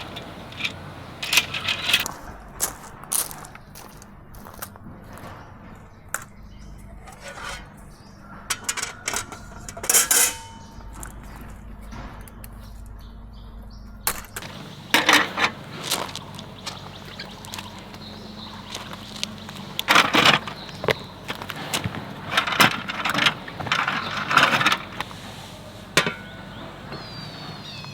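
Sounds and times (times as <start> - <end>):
camping gear clattering: 0.0 - 2.1, 8.5 - 11.0, 14.3 - 27.9.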